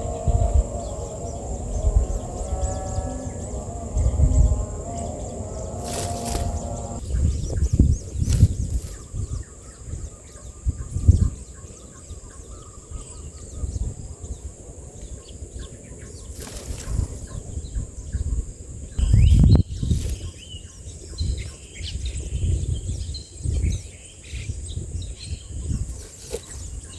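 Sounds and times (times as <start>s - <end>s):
steady high whine: 0.0s - 7.0s
nestlings chirping: 0.0s - 9.4s, 16.2s - 17.9s, 19.0s - 20.7s, 25.6s - 26.9s.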